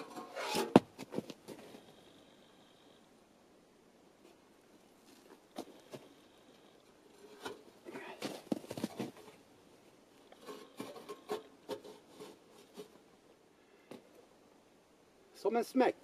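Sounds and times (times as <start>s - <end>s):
rustling: 0.0s - 2.3s, 4.2s - 14.2s.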